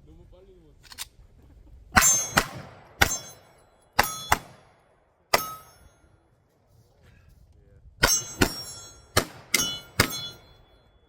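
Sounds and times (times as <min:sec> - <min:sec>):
bullets ringing steel plates: 0:02.0 - 0:04.7, 0:05.3 - 0:06.2, 0:08.0 - 0:11.0
pistol shots: 0:02.0 - 0:05.8, 0:08.0 - 0:10.6.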